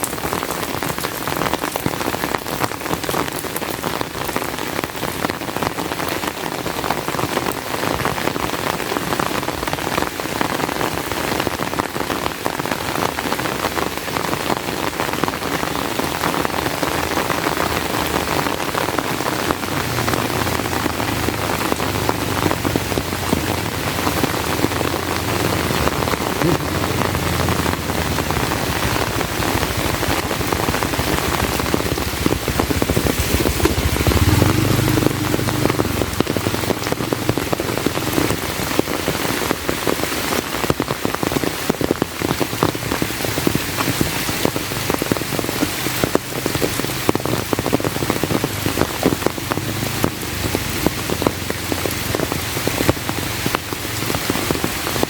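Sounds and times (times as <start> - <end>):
heavy rain falling: 0.0 - 55.0
low rumble: 19.6 - 37.8.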